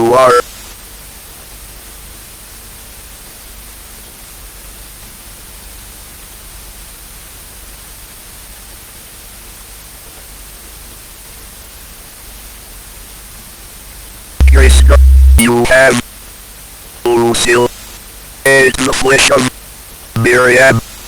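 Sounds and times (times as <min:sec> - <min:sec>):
faint low hum: 0:14.4 - 0:16.0
static hiss: 0:14.4 - 0:16.0, 0:17.1 - 0:17.9, 0:18.5 - 0:19.5, 0:20.2 - 0:21.0.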